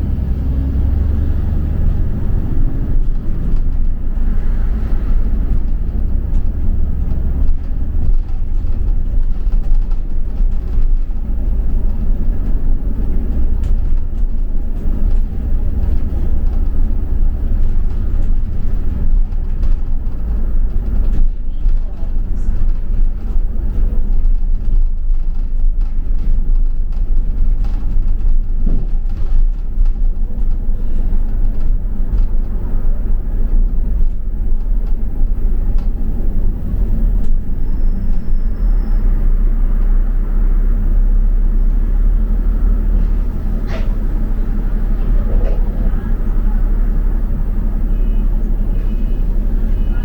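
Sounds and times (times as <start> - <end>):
bus engine and road rumble: 0.0 - 50.0.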